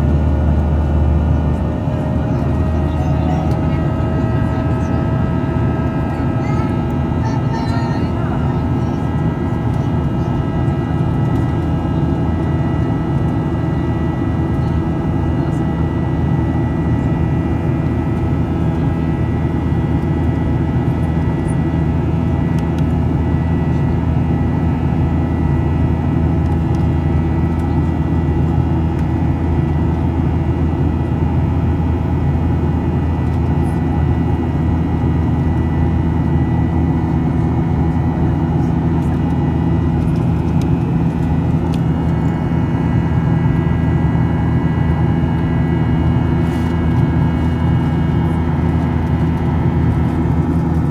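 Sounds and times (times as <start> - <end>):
jet airliner engines droning: 0.0 - 50.9.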